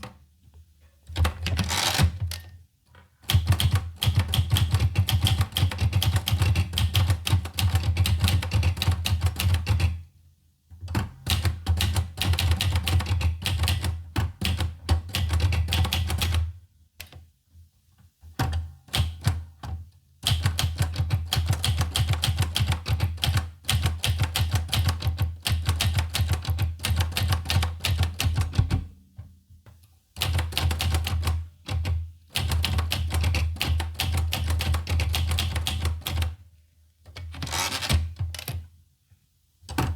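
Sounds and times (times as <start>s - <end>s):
manual typewriter keystrokes: 3.2s - 10.0s, 10.9s - 17.2s, 18.4s - 28.9s, 30.2s - 36.4s.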